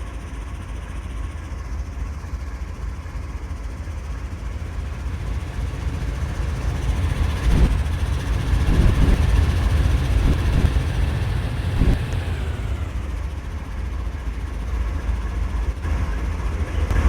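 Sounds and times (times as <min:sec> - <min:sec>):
train wheels rumbling on rail: 0:03.7 - 0:17.0.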